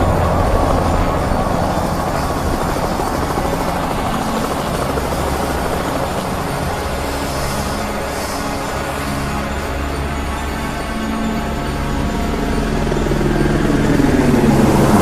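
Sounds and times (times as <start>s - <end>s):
low mechanical drone: 0.0s - 15.0s.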